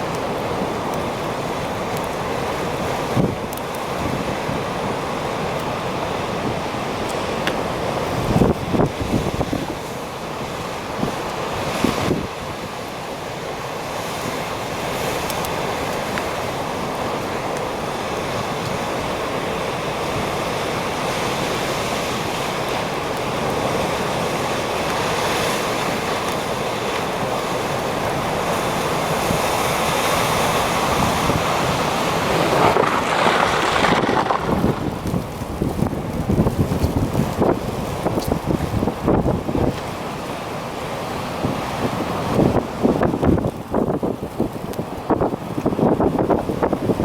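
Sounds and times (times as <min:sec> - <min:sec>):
storm waves breaking: 0:00.0 - 0:47.0.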